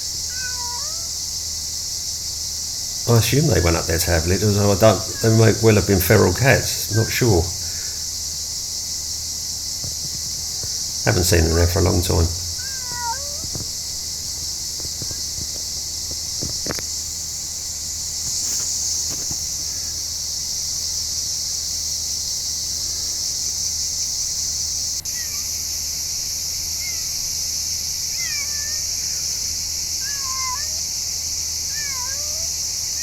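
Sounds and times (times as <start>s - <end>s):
short chirping calls: 0.0s - 8.3s, 10.4s - 14.2s, 25.0s - 25.8s, 27.9s - 33.0s
high-pitched insect drone: 0.0s - 33.0s.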